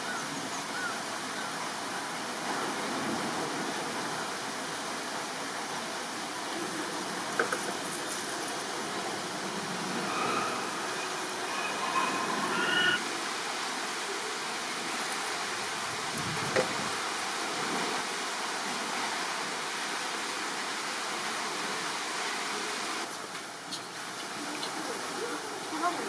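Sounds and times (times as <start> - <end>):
rushing background noise: 3.0 - 18.6
high whistled chirps: 9.9 - 13.0.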